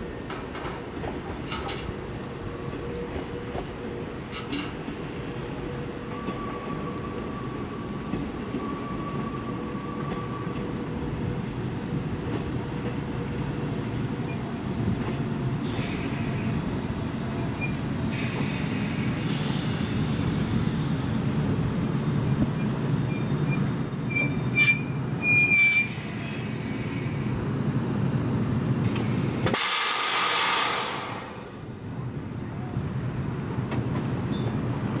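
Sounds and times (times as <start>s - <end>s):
electric train rumbling: 0.0s - 35.0s
wheel and brake squeals: 6.2s - 11.3s, 15.6s - 20.8s, 21.9s - 27.2s
air hiss: 18.1s - 21.2s, 28.8s - 31.6s.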